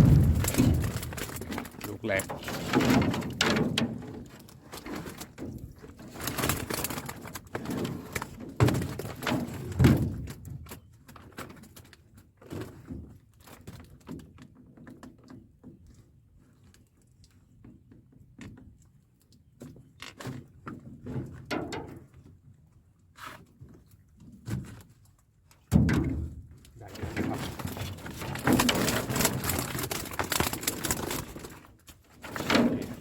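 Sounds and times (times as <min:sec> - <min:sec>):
heavy thumps: 0:00.0 - 0:02.4
fish flapping and rattling: 0:00.0 - 0:12.0, 0:26.9 - 0:33.0.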